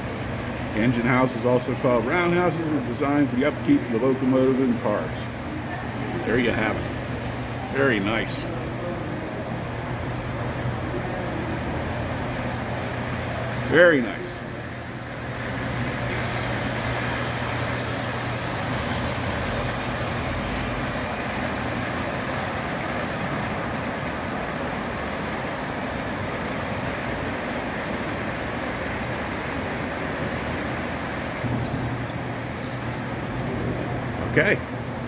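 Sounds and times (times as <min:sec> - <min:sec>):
low constant hum: 0:00.0 - 0:35.0.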